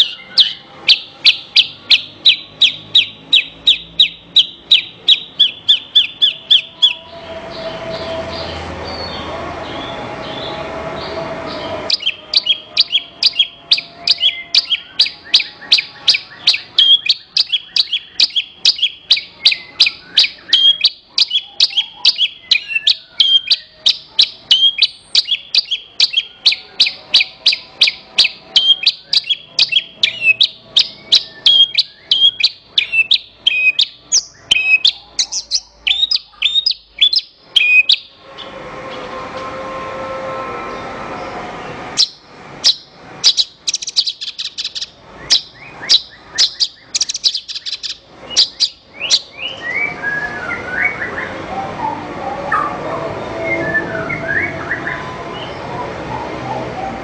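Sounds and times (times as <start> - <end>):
lark singing sharp chirps: 0.0 - 7.1, 11.9 - 38.2, 42.0 - 50.0.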